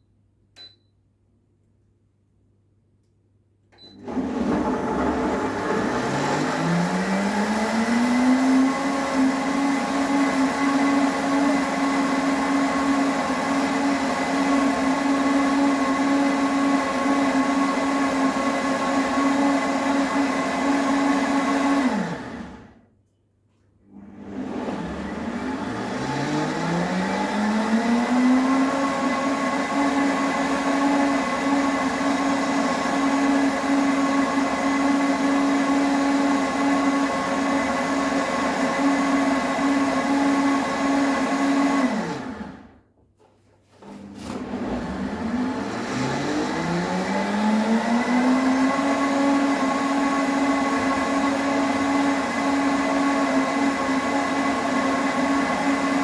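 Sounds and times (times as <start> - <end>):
electric blender running: 4.0 - 22.8, 23.9 - 42.8, 43.8 - 56.0.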